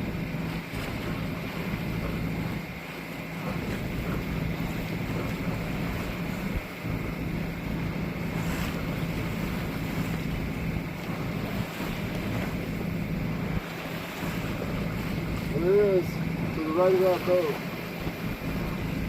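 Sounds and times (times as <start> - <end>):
low steady hum: 0.0 - 19.0
waves washing against sailboat: 0.0 - 19.0
wind buffeting microphone: 0.0 - 19.0.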